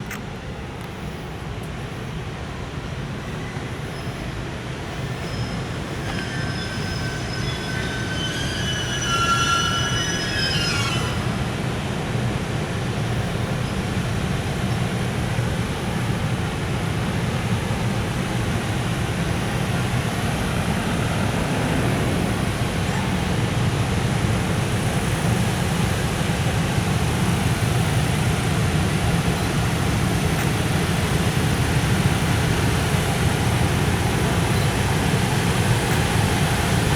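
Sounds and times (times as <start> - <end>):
freight train rolling past: 0.4 - 36.9
high-pitched multi-tone squeal: 5.1 - 11.5, 19.2 - 24.0.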